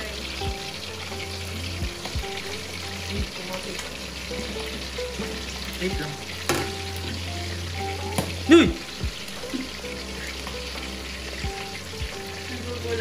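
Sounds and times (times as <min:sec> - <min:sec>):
meat sizzling in hot oil: 0:00.0 - 0:13.0
sharp oil pop: 0:08.1 - 0:08.4.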